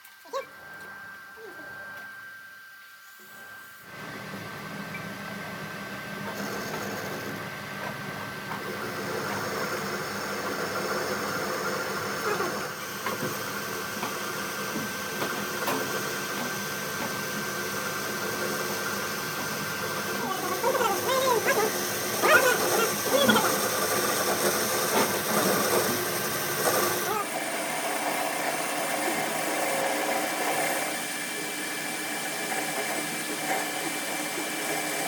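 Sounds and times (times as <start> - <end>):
machine hissing with high whine: 8.6 - 35.0.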